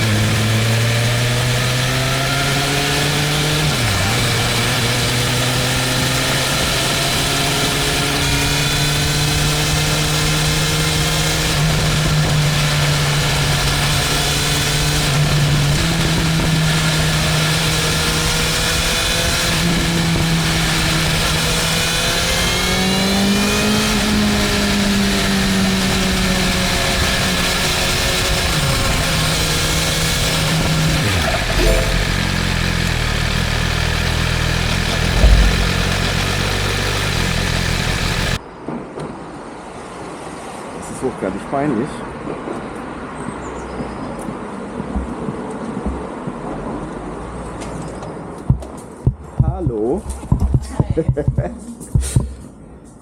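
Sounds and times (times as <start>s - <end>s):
motorcycle engine running: 0.0s - 38.4s, 48.5s - 52.2s
wind and road noise: 0.0s - 53.0s.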